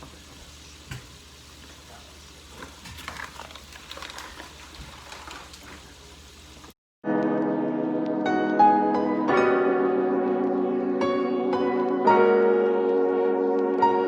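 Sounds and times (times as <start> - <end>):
shrimp frying in hot oil: 0.0 - 6.8.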